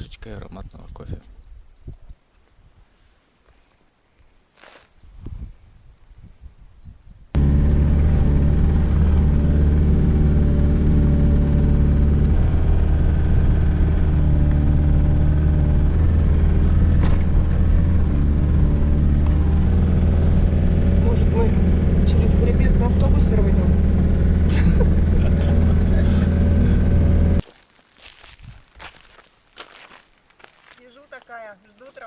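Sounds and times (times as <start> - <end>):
vehicle engine low drone: 7.4 - 27.4.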